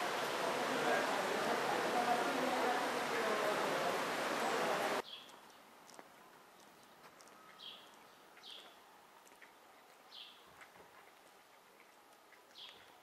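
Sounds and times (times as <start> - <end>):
light ticks: 5.2 - 10.0.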